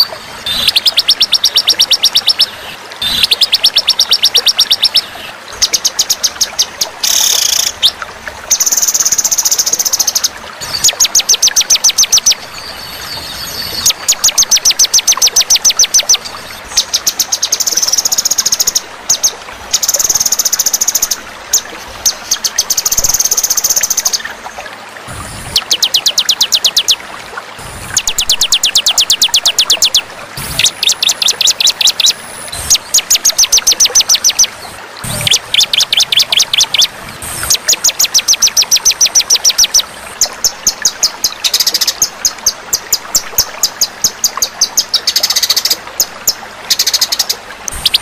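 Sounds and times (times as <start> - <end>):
songbird trilling: 0.0 - 5.1, 25.5 - 27.0, 28.0 - 39.8.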